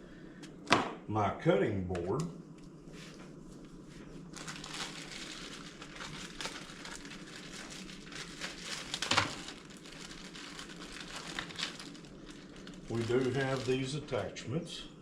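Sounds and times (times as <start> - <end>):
packaging crinkling and rustling: 4.2 - 14.2.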